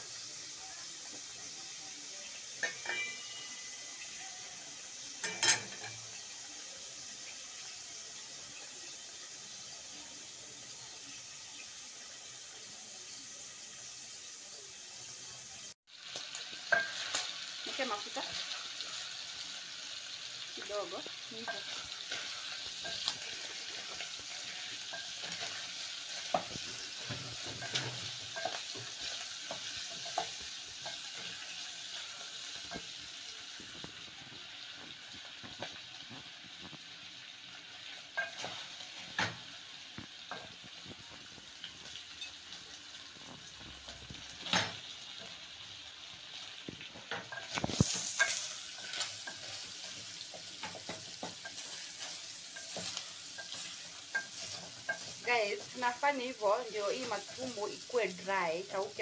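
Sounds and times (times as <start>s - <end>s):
food sizzling in oil: 0.0s - 59.0s
wooden spoon scraping a pot: 20.6s - 33.0s, 46.9s - 56.0s.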